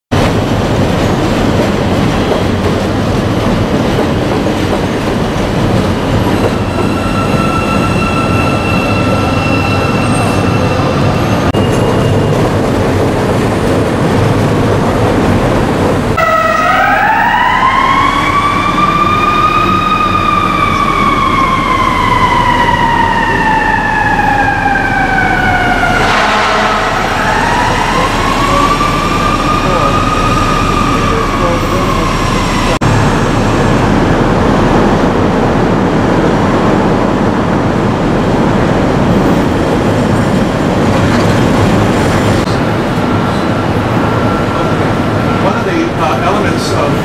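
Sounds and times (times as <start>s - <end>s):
train wheels rumbling on rail: 0.1s - 16.2s, 18.5s - 47.0s
train high whine: 0.4s - 47.0s
emergency vehicle siren: 16.1s - 35.9s, 42.8s - 46.4s.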